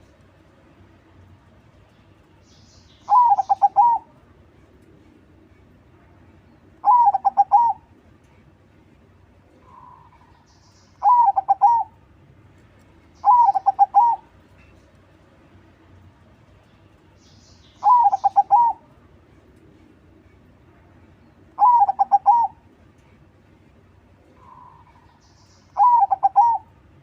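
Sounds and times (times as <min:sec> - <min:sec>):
dove cooing: 0:03.1 - 0:04.1, 0:06.8 - 0:07.9, 0:11.0 - 0:12.0, 0:13.2 - 0:14.3, 0:17.8 - 0:18.8, 0:21.6 - 0:22.6, 0:25.8 - 0:26.7.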